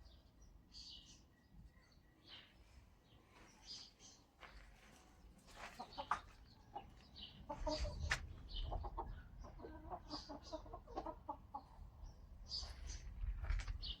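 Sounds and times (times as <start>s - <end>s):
chickens clucking: 5.4s - 12.0s.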